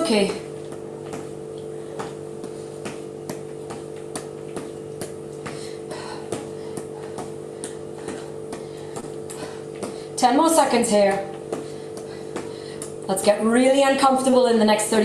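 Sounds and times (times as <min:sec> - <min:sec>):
steady low hum: 0:00.0 - 0:15.0
shoes tapping a hard floor: 0:02.0 - 0:05.7.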